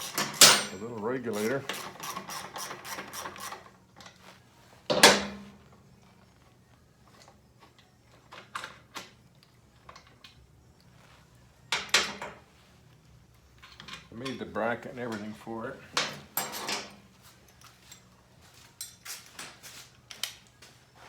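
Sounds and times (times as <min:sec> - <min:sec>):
metallic clatter of tools: 0:00.0 - 0:04.2, 0:16.0 - 0:18.1, 0:18.7 - 0:20.4.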